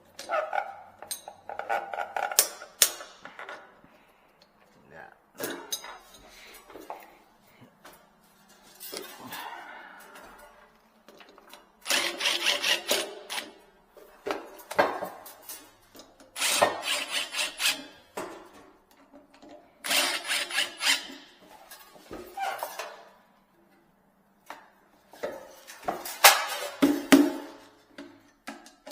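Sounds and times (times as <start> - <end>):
tool scraping and rubbing: 11.8 - 13.6, 16.4 - 18.1, 19.9 - 22.7.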